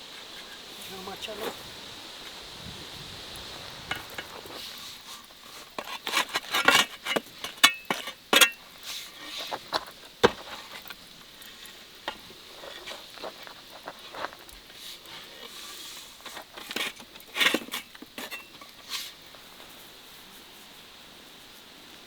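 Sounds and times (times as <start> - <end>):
high insect drone: 0.0 - 22.0
crackles and clicks of handling: 3.4 - 20.4.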